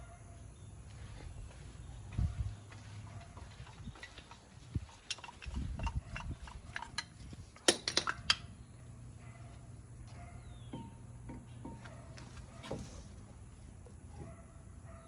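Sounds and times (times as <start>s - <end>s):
tools and parts clinking: 3.4s - 8.6s.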